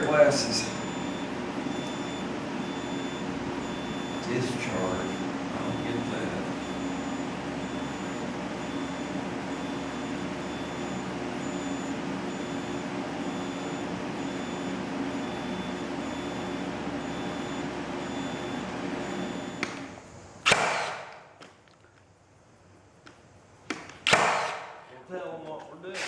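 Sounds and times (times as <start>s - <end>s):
high pulsing whine: 0.0s - 20.4s
power inverter humming: 0.0s - 25.5s.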